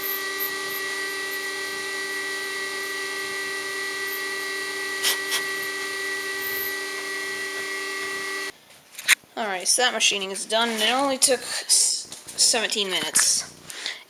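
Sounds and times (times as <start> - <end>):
milling machine spindle whine: 0.0 - 8.5.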